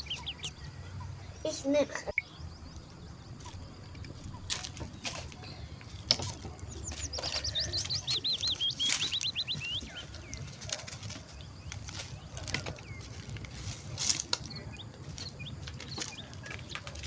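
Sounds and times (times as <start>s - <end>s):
songbird whistling: 0.0s - 0.6s, 6.7s - 10.6s.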